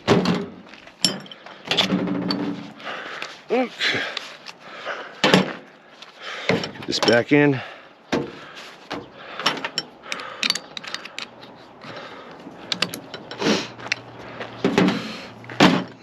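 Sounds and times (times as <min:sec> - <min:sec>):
metal clicking and scraping: 0:00.2 - 0:02.8, 0:09.4 - 0:16.0.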